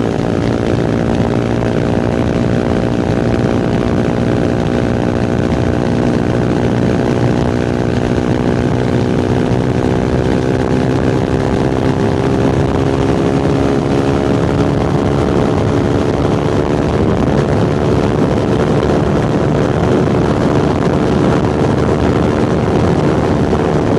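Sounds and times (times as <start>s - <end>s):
motorcycle engine and exhaust: 0.0s - 23.9s
rushing noise: 0.0s - 23.9s.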